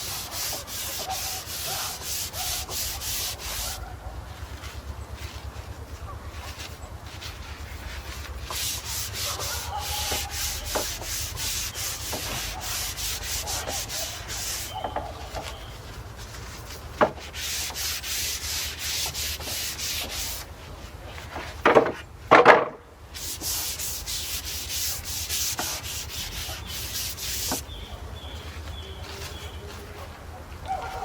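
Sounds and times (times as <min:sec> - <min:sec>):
brush rubbing on wood: 0:00.0 - 0:21.8, 0:23.1 - 0:27.8
knocks: 0:21.6 - 0:22.8.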